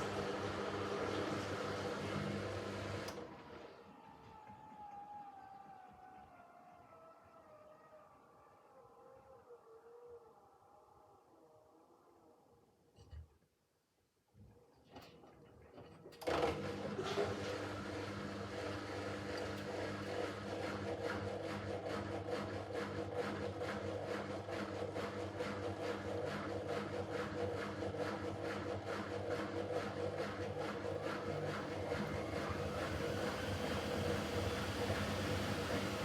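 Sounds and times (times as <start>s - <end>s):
washing machine motor hum: 0.0s - 6.0s, 16.2s - 36.0s.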